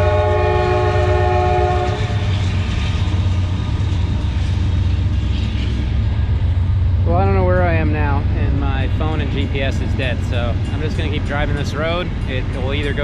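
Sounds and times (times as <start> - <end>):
train horn chord: 0.0 - 2.3
wind: 0.0 - 13.0.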